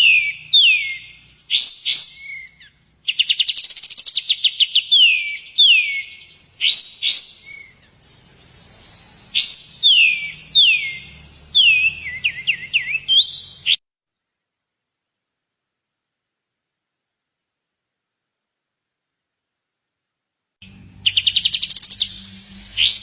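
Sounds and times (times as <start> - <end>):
songbird singing: 0.0 - 14.4, 20.6 - 23.0.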